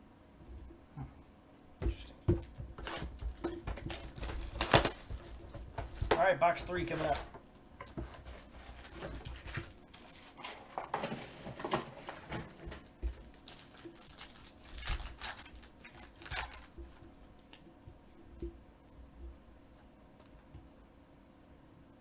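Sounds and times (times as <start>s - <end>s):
foil wrapper tearing and crinkling: 3.8s - 7.3s, 8.4s - 10.5s, 13.1s - 17.5s.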